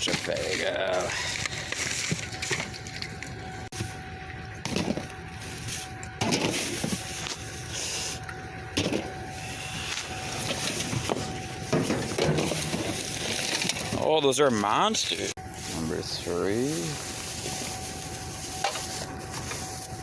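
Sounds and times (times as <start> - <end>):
faint steady whine: 0.0 - 20.0
rustling in dumpster: 8.8 - 14.1
bottles and cans clunking: 10.4 - 14.1.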